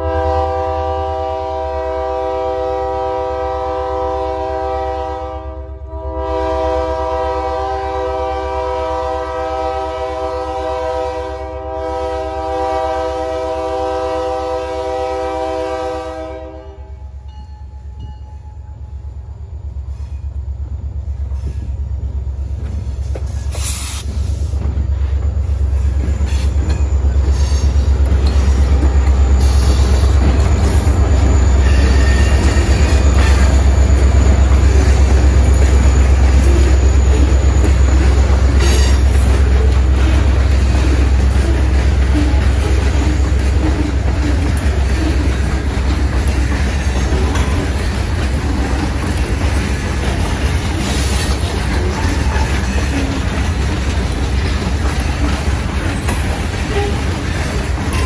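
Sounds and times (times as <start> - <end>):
locomotive air horn blasts: 0.0 - 17.1, 34.5 - 45.4, 56.7 - 57.2
locomotive rumble: 0.0 - 58.0
wheels clattering over rail joints: 21.4 - 58.0.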